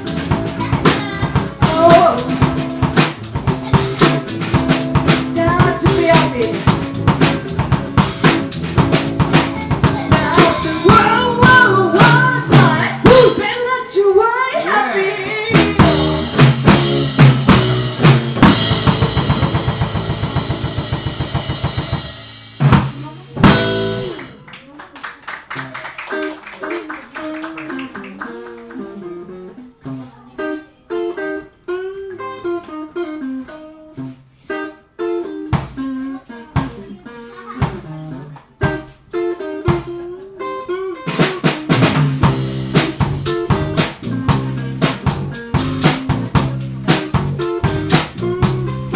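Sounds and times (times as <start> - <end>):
drum kit beat: 0.0 - 13.6, 15.5 - 24.5, 35.5 - 40.1, 41.0 - 48.9
live band playing: 0.0 - 13.6, 14.6 - 24.8, 25.4 - 48.9
guitar plucking melodic notes: 0.0 - 13.8, 14.7 - 21.2, 23.0 - 24.5, 26.0 - 48.9.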